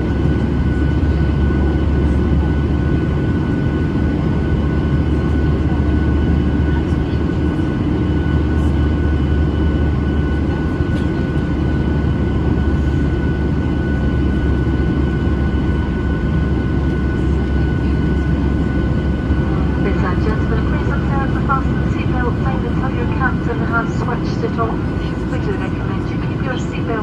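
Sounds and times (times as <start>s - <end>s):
jet engine cabin rumble: 0.0s - 27.0s
thin steady whine: 8.2s - 27.0s.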